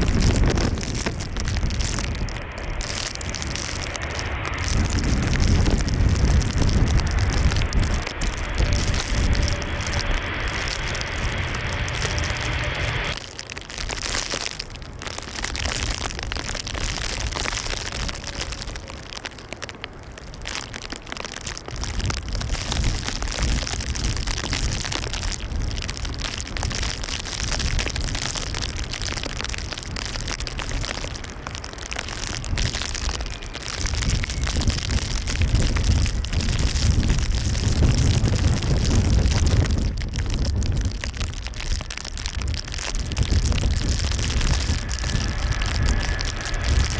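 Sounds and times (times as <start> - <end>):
jet engines rumbling: 0.0 - 13.3, 41.0 - 46.9
gusty wind on microphone: 0.0 - 46.9.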